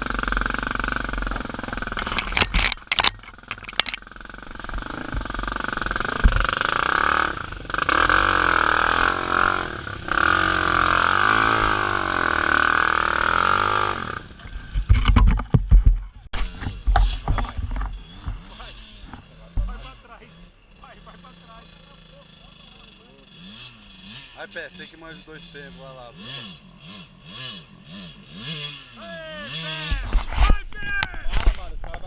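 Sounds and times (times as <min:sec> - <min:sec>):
dirt bike engine revving: 0:00.0 - 0:30.4
knocks and thumps: 0:06.2 - 0:06.6, 0:14.7 - 0:19.8.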